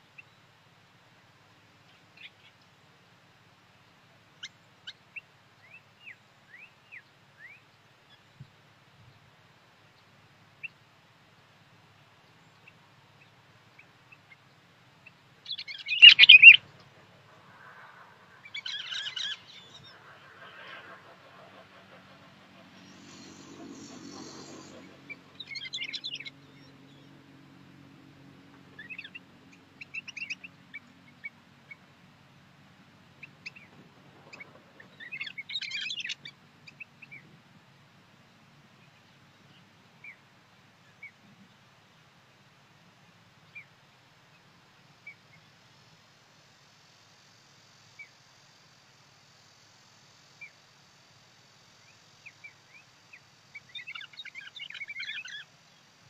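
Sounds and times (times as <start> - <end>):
small songbirds chirping: 1.8 - 3.0, 3.8 - 10.9, 11.8 - 32.0, 33.0 - 37.4, 51.6 - 56.0.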